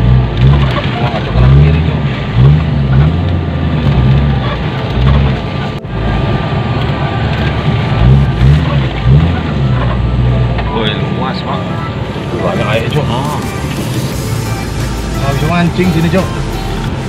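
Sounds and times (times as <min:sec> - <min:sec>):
driving noise: 0:00.0 - 0:17.0
vehicle engine revving: 0:00.0 - 0:17.0.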